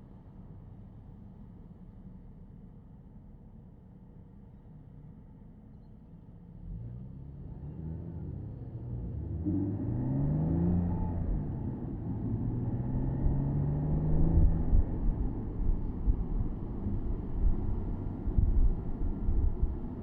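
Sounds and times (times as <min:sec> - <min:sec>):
car engine accelerating: 0:06.6 - 0:20.0
road and wind noise: 0:06.6 - 0:20.0.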